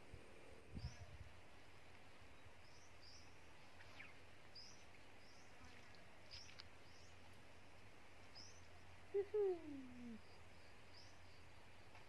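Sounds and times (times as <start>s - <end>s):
small bird chirping: 2.6s - 7.4s, 8.2s - 11.5s.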